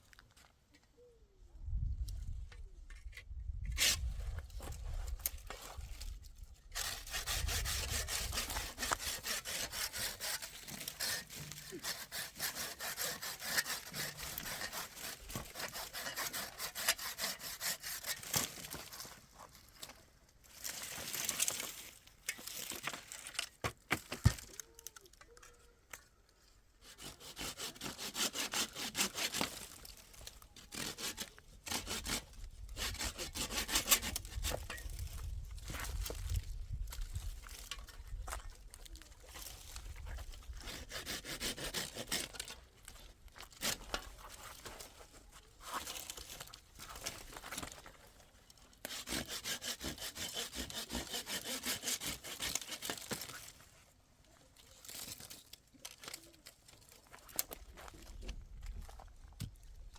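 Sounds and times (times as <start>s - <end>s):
saw cutting through wood: 6.7s - 18.9s, 26.8s - 34.6s, 40.4s - 42.6s, 48.8s - 53.5s.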